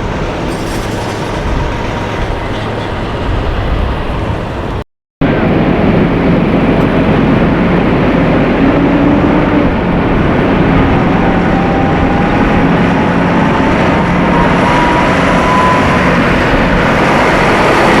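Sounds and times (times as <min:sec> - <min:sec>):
truck driving by: 0:00.0 - 0:18.0
thin rising whine: 0:05.2 - 0:18.0.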